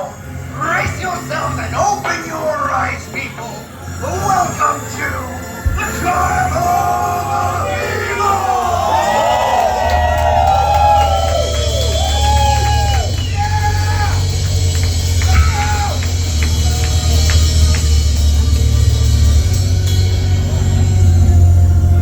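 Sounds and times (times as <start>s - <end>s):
low bass drone: 5.3s - 22.0s.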